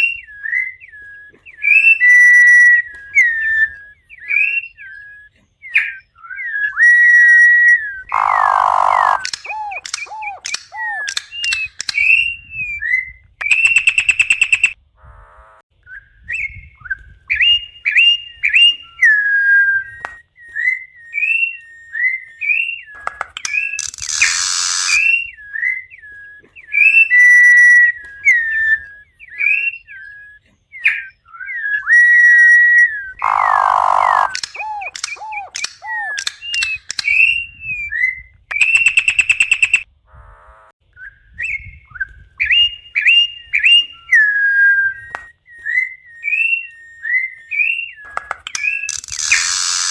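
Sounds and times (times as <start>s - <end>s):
harsh raspy bird notes: 0.0s - 12.3s, 21.9s - 40.7s, 46.2s - 49.9s
bird whistling song: 0.0s - 14.8s, 15.8s - 39.9s, 40.9s - 49.9s.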